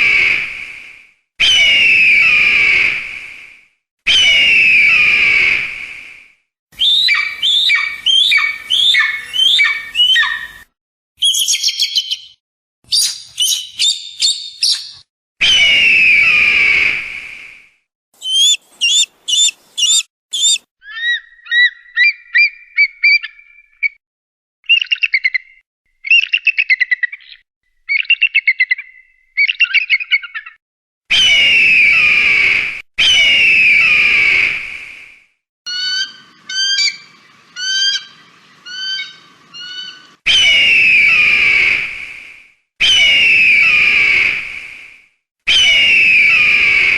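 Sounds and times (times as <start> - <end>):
eagle screams: 4.1 - 5.6, 6.8 - 10.6, 18.2 - 22.1, 31.1 - 34.6, 35.7 - 41.9, 42.8 - 44.4, 45.5 - 46.9
eagle chirping: 6.8 - 10.6, 11.2 - 15.0, 18.2 - 23.8, 35.7 - 40.5.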